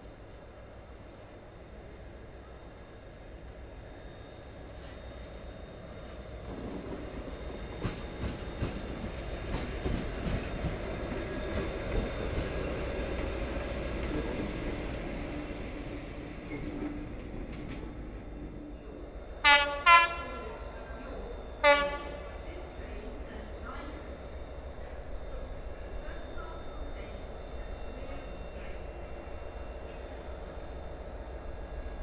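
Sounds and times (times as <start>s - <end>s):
train rumbling over rail joints: 4.8s - 27.0s
train horn blasts: 19.4s - 20.7s, 21.6s - 22.4s.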